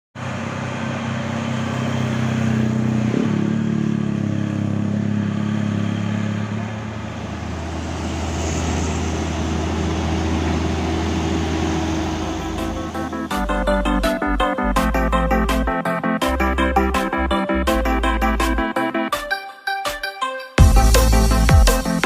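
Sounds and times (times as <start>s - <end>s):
truck diesel engine labouring: 0.2s - 19.2s, 20.6s - 22.0s.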